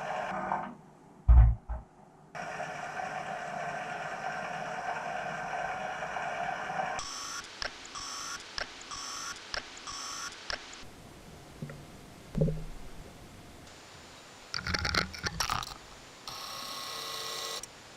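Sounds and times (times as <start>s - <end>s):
low thump: 1.3s - 1.8s
small electric motor whining: 16.3s - 17.7s.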